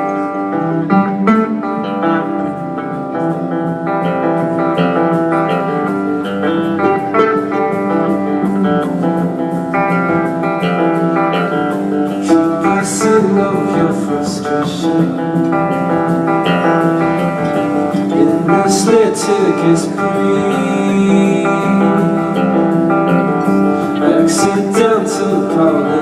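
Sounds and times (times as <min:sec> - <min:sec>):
plucked string instrument: 0:00.0 - 0:26.0.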